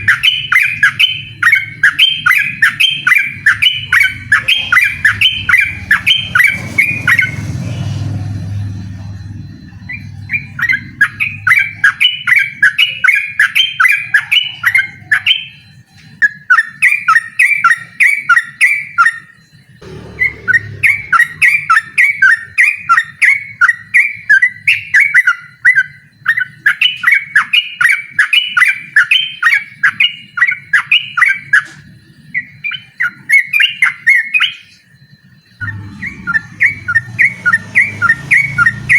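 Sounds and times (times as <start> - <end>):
bulbul singing chirping notes: 0.0 - 15.7, 16.4 - 30.0, 32.4 - 38.9
low rumble: 3.6 - 11.6, 19.8 - 22.2, 35.6 - 38.9.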